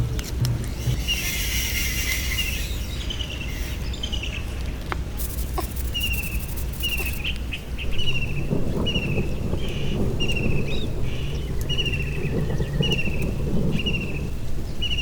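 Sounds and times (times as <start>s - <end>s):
low outdoor rumble: 0.0s - 15.0s
bird chirping: 0.6s - 7.4s.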